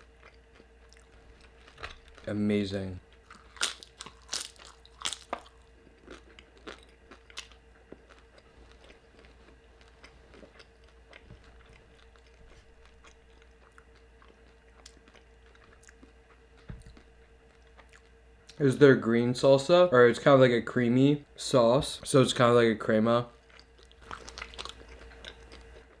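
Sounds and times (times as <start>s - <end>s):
crunchy food crunching: 0.0s - 2.4s, 3.1s - 18.6s, 23.4s - 26.0s
faint steady hum: 0.0s - 26.0s.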